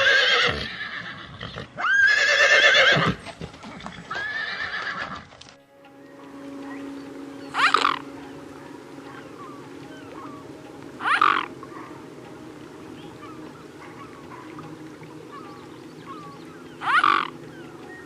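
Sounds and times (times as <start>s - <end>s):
small birds chirping: 5.6s - 18.0s
bird's loud upward call: 6.0s - 8.5s, 15.3s - 17.7s.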